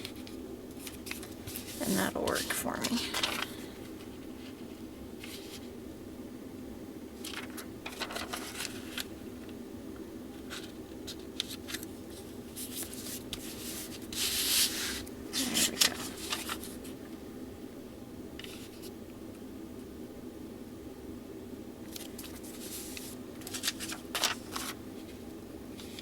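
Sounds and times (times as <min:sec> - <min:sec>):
parchment paper rustling and crinkling: 0:00.0 - 0:05.7, 0:07.2 - 0:09.6, 0:10.3 - 0:17.2, 0:18.4 - 0:19.0, 0:21.8 - 0:26.0
steady low hum: 0:00.0 - 0:26.0.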